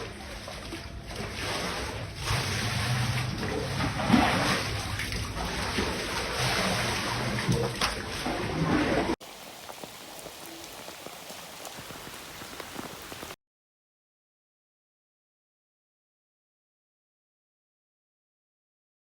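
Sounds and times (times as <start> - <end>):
water splashing and rushing: 0.0 - 13.4.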